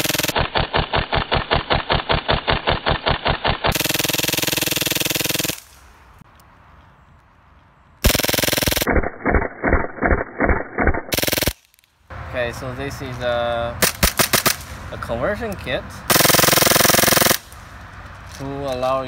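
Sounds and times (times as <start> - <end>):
muffled airsoft gun firing: 0.0 - 5.6, 13.8 - 14.6, 16.1 - 17.5.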